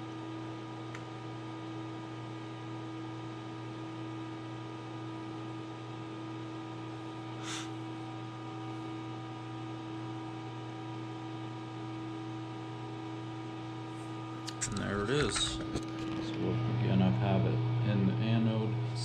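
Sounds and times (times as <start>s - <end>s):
electrical hum with tones: 0.0s - 19.0s
even hiss: 7.4s - 7.7s.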